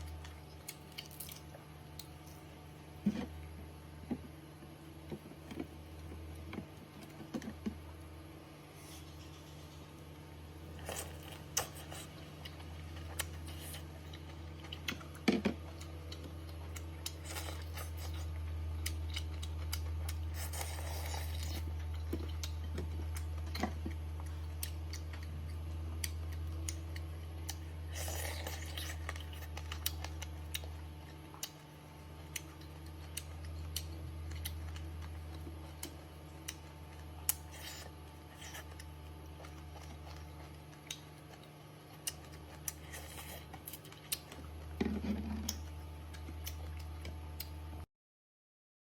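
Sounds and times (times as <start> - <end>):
steady low hum: 0.0 - 47.9
small clicks from eating: 28.8 - 44.4.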